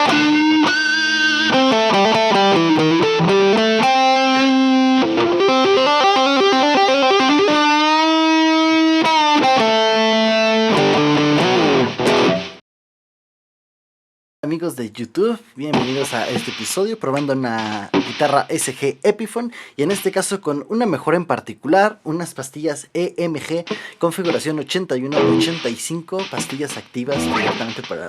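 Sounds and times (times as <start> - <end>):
electric guitar lead riff: 0.0 - 12.6, 25.2 - 25.7, 26.4 - 27.8.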